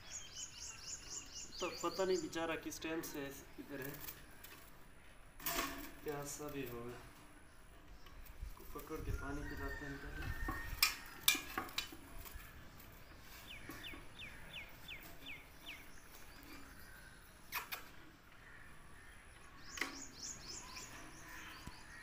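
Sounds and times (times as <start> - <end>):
small bird chirping: 0.0 - 4.6, 19.4 - 22.0.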